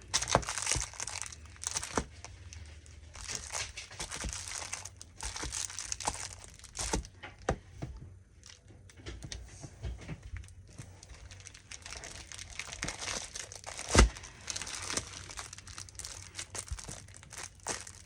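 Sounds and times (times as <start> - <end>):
paper and packaging crinkling: 0.0 - 7.4, 10.0 - 18.0.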